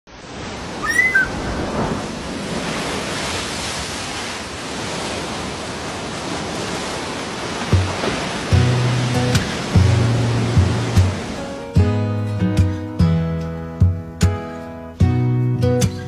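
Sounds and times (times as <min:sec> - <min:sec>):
short high chirps: 0:00.8 - 0:01.3.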